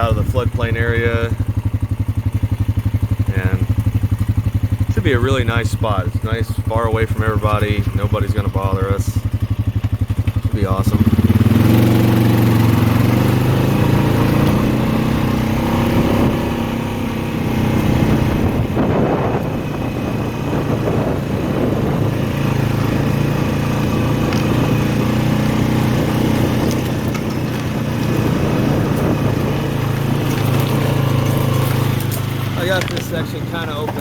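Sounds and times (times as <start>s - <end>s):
atv engine running: 0.0s - 34.0s.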